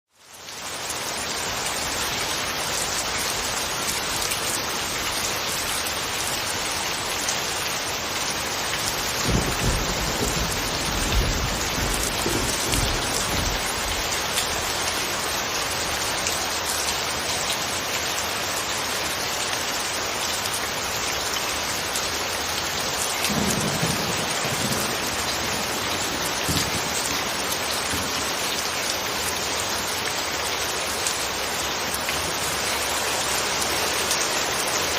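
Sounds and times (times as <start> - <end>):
steady rain falling: 0.1 - 34.9
low thunder rumbles: 8.9 - 14.7, 23.2 - 28.6.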